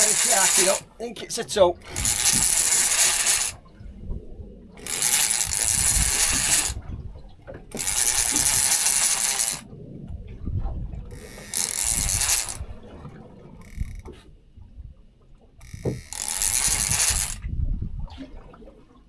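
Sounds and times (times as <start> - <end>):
fishing reel ratcheting: 0.0 - 3.6, 4.8 - 6.8, 7.7 - 9.6, 11.1 - 12.7, 13.6 - 14.2, 15.6 - 17.4.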